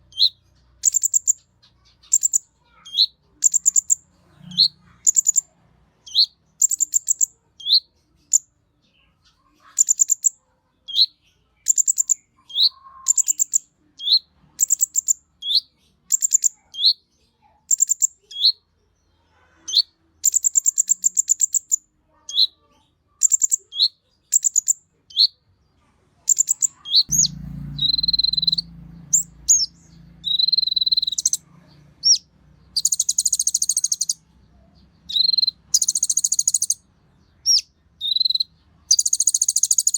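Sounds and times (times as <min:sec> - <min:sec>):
bird singing trills: 0:00.0 - 0:18.7, 0:19.7 - 0:25.4, 0:26.3 - 0:39.9
low background hum: 0:27.0 - 0:39.5.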